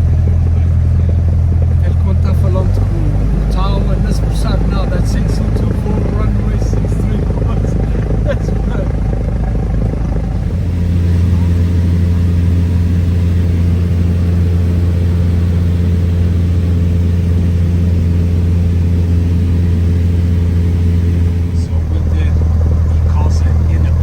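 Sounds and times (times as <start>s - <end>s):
propeller plane engine droning: 0.0s - 24.0s.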